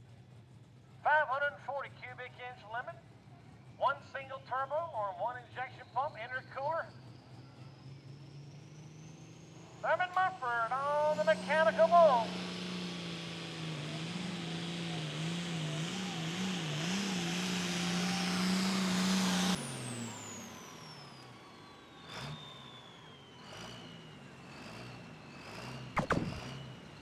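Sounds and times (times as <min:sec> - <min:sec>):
diesel engine running hard: 0:03.0 - 0:03.8, 0:04.6 - 0:27.0
engine idling unevenly: 0:09.7 - 0:12.5
falling turbo whine: 0:10.4 - 0:27.0
sharp knock: 0:26.0 - 0:26.5.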